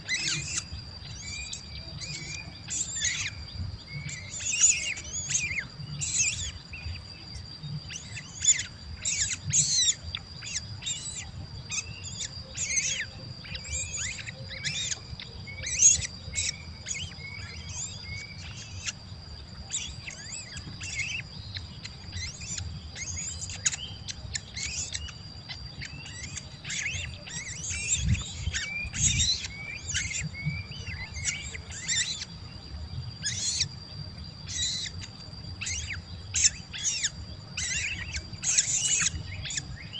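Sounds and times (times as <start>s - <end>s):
nestling birds chirping: 0.0s - 39.9s.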